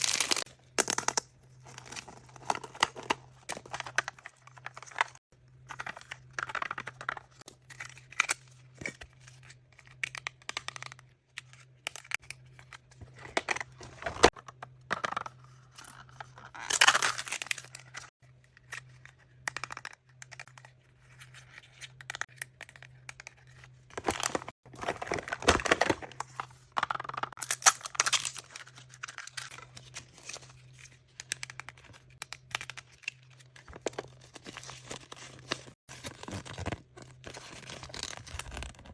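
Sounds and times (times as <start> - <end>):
toy wrapping crinkling and tearing: 0.0 - 0.5.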